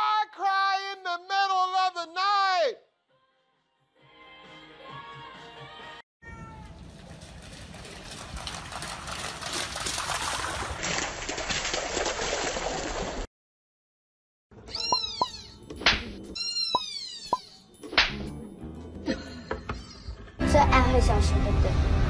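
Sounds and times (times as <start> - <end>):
dog splashing on wet pavement: 6.9 - 13.3
kitten meowing: 14.7 - 15.6.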